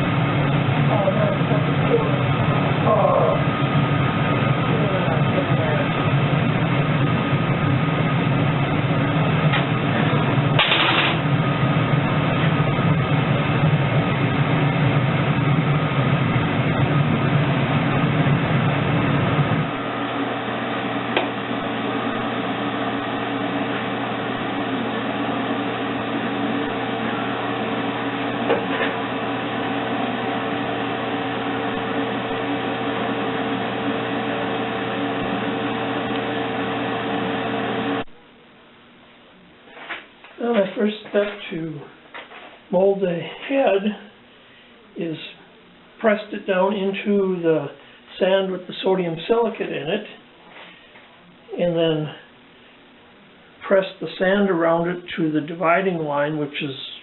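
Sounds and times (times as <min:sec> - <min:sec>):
motor humming: 0:00.0 - 0:38.2.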